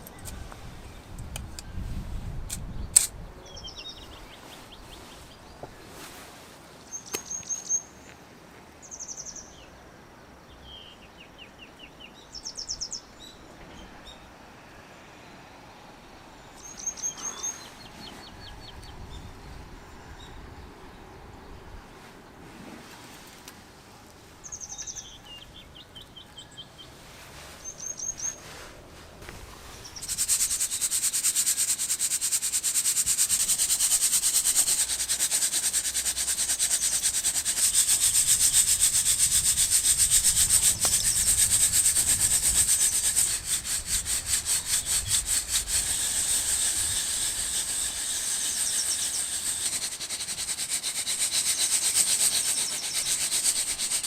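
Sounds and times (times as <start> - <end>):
coffee beans rattling in roaster: 32.6 - 54.0
high bird chirps: 44.8 - 50.0.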